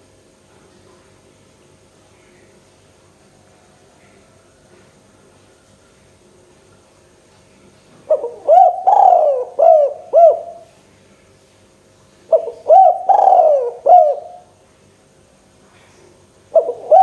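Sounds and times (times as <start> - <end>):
dove cooing: 8.1 - 10.7, 12.3 - 14.5, 16.5 - 17.0.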